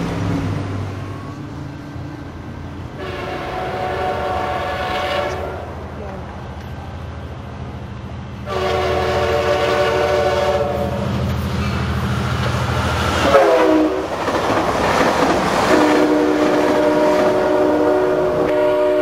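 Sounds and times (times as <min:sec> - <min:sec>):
diesel engine rumble: 0:00.0 - 0:13.4
wheels rattling on rail: 0:00.0 - 0:19.0
train air horn: 0:03.0 - 0:05.8, 0:08.4 - 0:11.2, 0:13.2 - 0:14.1, 0:15.7 - 0:19.0.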